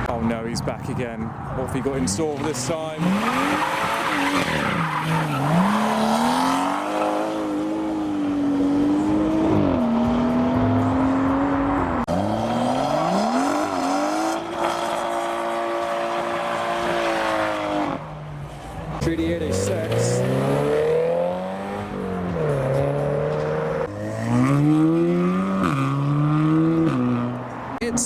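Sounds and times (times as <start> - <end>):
car engine revving hard: 2.4 - 18.1, 19.0 - 27.5.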